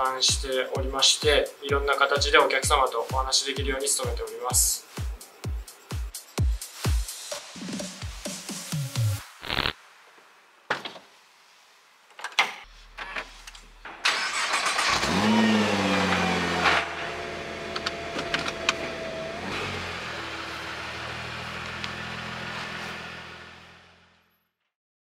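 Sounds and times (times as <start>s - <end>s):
car engine starting and idling: 13.8s - 24.4s.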